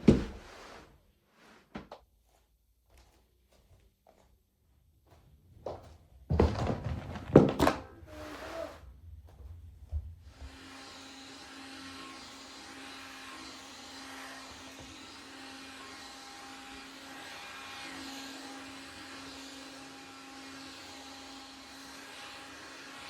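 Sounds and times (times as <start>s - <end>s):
vacuum cleaner running: 7.3s - 23.0s.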